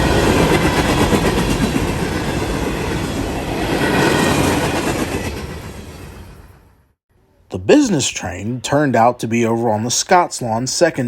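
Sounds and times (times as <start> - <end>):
freight train wheels clattering: 0.0 - 6.6.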